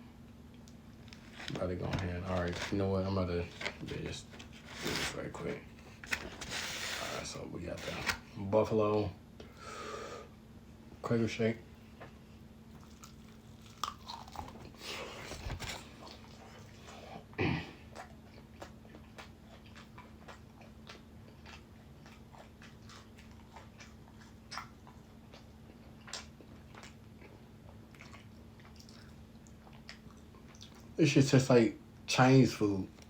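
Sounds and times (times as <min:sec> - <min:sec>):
person chewing chicken wing: 0:12.7 - 0:17.0, 0:17.8 - 0:30.9.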